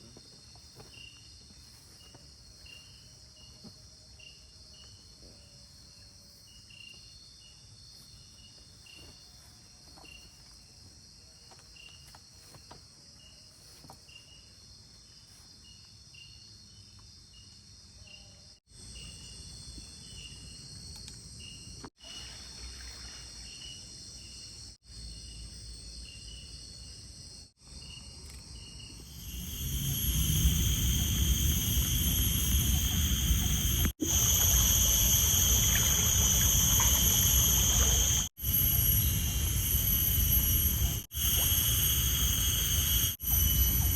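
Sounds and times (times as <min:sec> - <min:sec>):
crickets chirping: 0:00.0 - 0:43.9
water rushing: 0:29.9 - 0:38.3.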